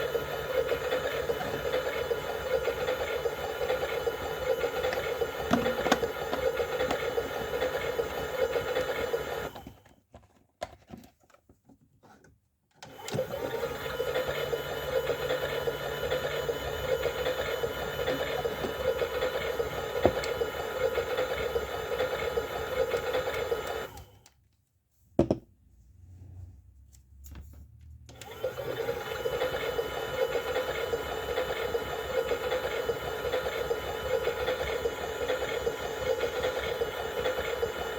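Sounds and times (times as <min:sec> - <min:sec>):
small electric motor whirring: 0:00.0 - 0:09.7, 0:12.9 - 0:24.2, 0:28.2 - 0:37.9.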